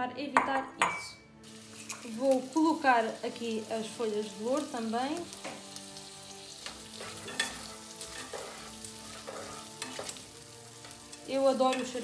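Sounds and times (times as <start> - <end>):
onions sizzling in oil: 1.4 - 12.0
spatula scraping and stirring: 5.4 - 12.0.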